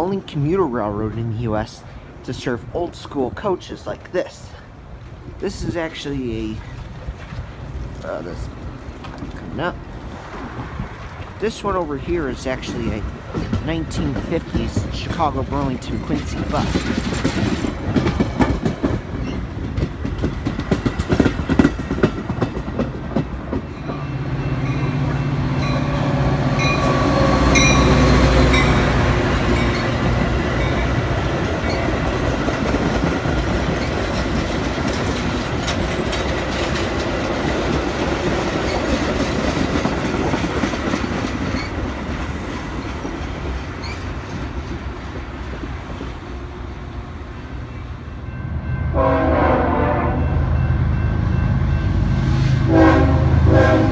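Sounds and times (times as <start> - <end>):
train wheels rumbling: 0.0 - 53.9
train wheels clicking over rail joints: 6.5 - 46.4.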